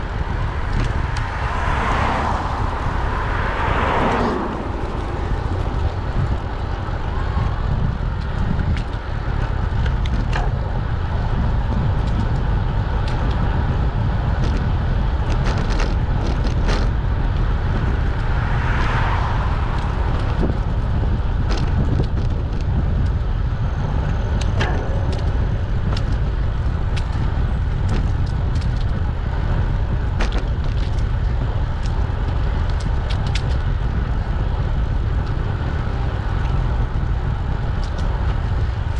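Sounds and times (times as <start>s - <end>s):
rushing noise: 0.0s - 8.2s, 16.9s - 22.4s
bicycle clicks and rattles: 0.0s - 38.9s
wind rumbling on microphone: 0.0s - 38.9s.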